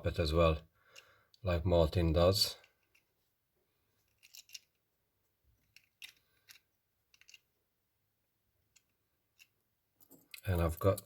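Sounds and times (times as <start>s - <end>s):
small plastic parts clicking: 4.0s - 4.8s, 5.6s - 7.6s.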